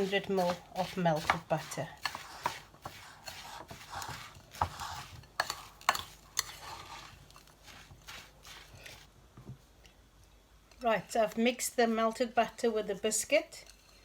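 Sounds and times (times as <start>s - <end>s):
gritty scraping in a bowl: 0.0s - 9.1s.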